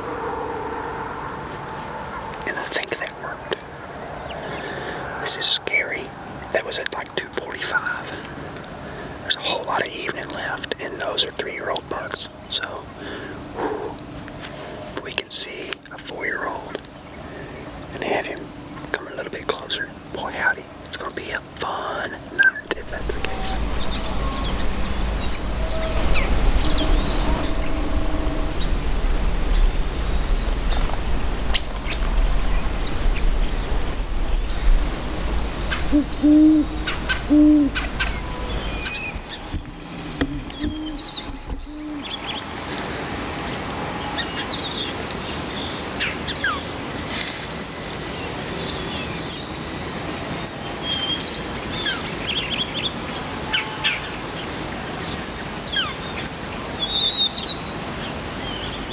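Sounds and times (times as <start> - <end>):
songbirds chirping faintly: 0.0 - 58.9
owl hooting: 22.6 - 42.4.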